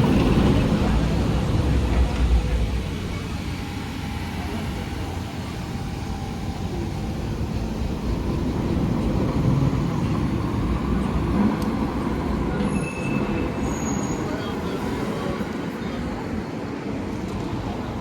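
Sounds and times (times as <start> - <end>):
vehicle engine low rumble: 0.0 - 12.6.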